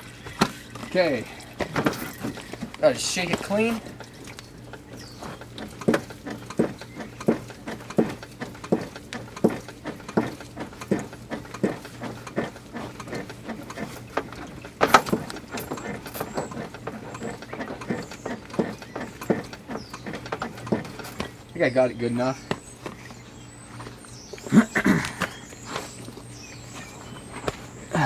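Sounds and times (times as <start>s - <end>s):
oil filter being shaken: 0.0s - 21.5s.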